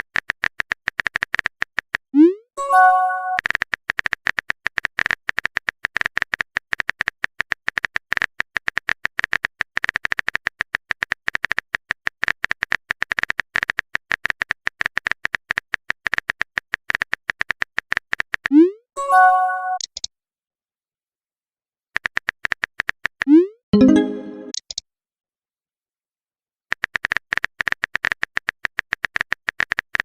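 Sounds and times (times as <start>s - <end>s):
keyboard typing clicks: 23.2s - 24.8s.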